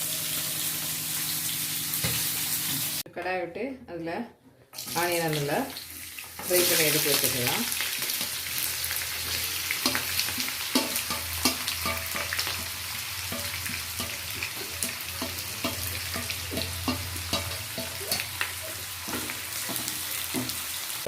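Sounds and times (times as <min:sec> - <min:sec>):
onions sizzling in hot oil: 0:00.0 - 0:03.0, 0:04.8 - 0:21.0
spoon scraping against pan: 0:09.8 - 0:20.7.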